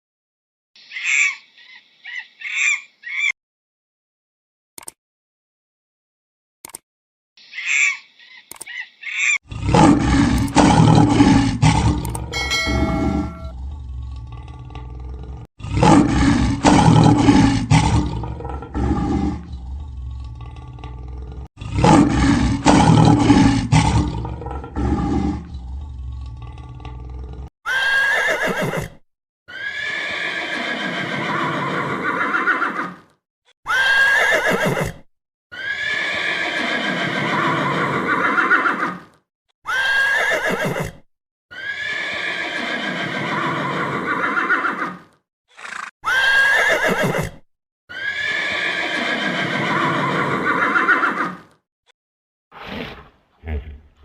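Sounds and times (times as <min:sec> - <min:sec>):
deep animal roar: 0:09.5 - 0:27.5, 0:52.6 - 0:54.0
horse whinnying: 0:27.7 - 0:33.0, 0:33.7 - 0:39.1, 0:39.7 - 0:51.5, 0:52.6 - 0:54.0.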